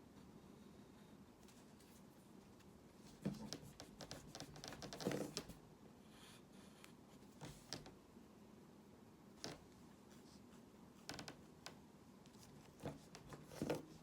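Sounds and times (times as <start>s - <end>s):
pen tapping and scratching: 3.2s - 5.6s.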